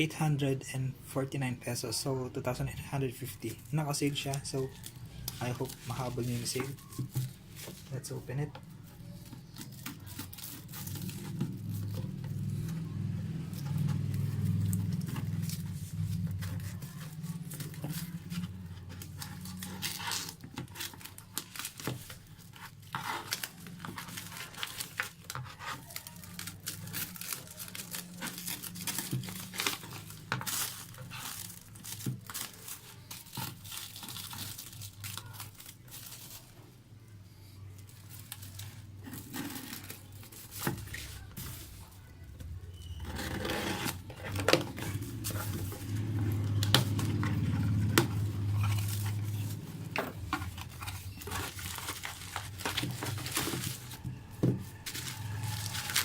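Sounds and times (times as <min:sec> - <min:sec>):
packaging tearing and crinkling: 0:09.1 - 0:36.6, 0:37.8 - 0:41.9, 0:42.9 - 0:56.0.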